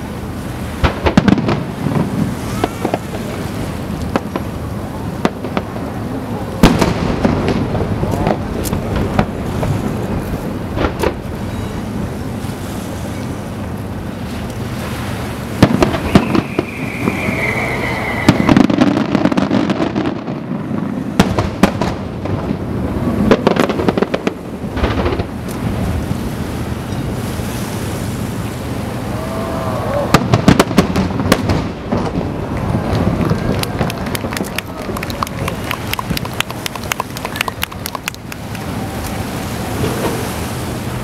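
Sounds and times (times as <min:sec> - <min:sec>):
fireworks bursting: 0:00.8 - 0:12.2, 0:15.3 - 0:25.9, 0:30.1 - 0:41.0
falling firework whistle: 0:15.6 - 0:19.9.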